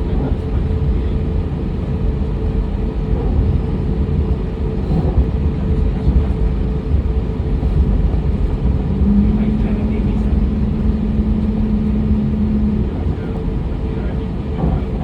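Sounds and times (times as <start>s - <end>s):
airliner cabin rumble: 0.0s - 15.0s
faint steady hum: 8.4s - 14.5s.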